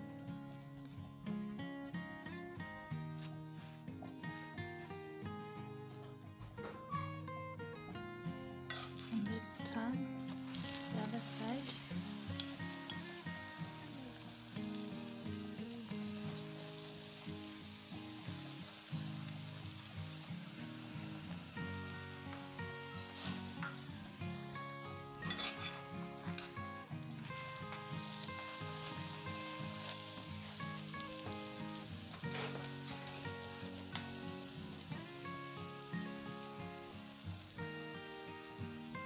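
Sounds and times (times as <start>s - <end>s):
flatbread sizzling on a pan: 0.0s - 39.0s
metal spoon scraping a pan: 8.2s - 9.2s, 25.2s - 26.6s.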